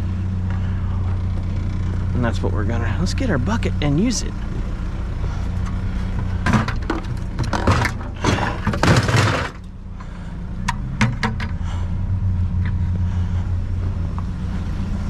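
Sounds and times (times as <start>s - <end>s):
truck engine idling: 0.0s - 15.0s
hard objects clattering: 6.4s - 9.7s.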